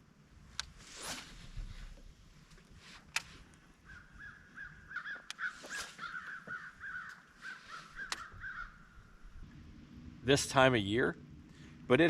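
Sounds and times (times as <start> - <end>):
birds calling: 3.6 - 10.2
sharp clicks: 5.2 - 5.4, 8.0 - 8.4.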